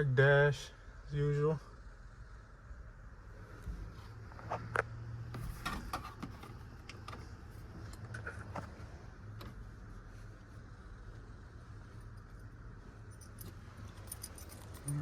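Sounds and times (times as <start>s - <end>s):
low steady hum: 0.0s - 15.0s
sharp clicks and light knocks: 4.4s - 8.7s.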